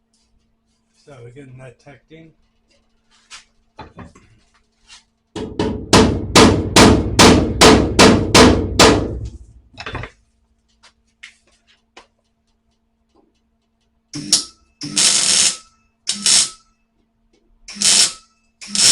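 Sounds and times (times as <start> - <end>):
hammer striking sheet metal: 5.4 - 9.5, 14.2 - 16.7.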